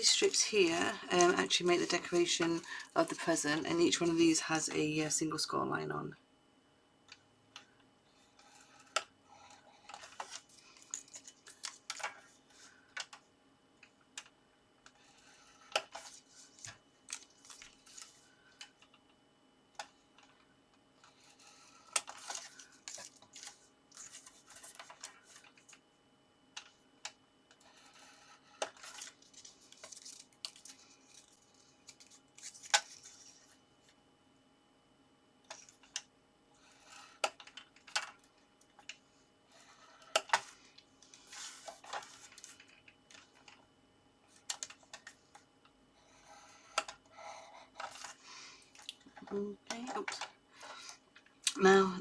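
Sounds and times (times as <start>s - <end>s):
scoring tool scratching paper: 8.2s - 9.8s, 27.6s - 29.0s, 46.0s - 48.0s.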